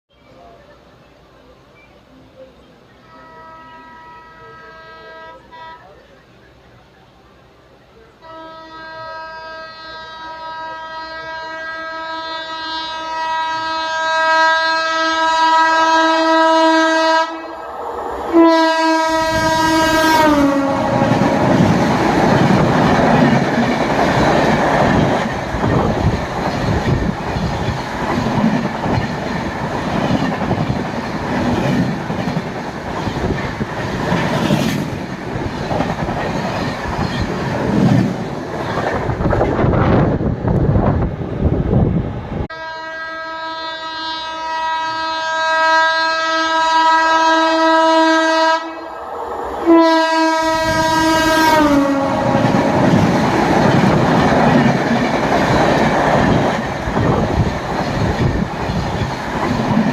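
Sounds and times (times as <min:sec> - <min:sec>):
train horn blasts: 0:03.0 - 0:06.0, 0:08.2 - 0:17.6, 0:18.3 - 0:21.6, 0:42.5 - 0:49.0, 0:49.6 - 0:53.0.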